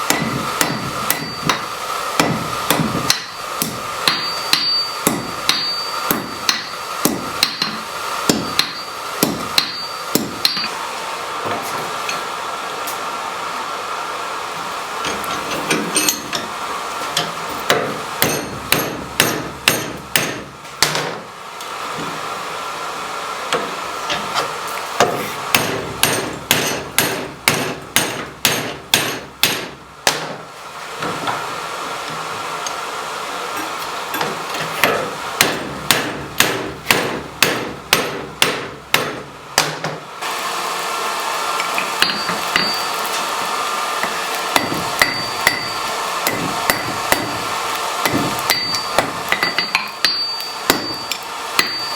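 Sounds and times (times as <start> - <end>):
hammer striking metal on anvil: 0.0 - 10.8, 15.0 - 16.5, 17.2 - 21.2, 25.0 - 30.4, 34.1 - 40.0, 41.6 - 43.1, 44.0 - 51.9.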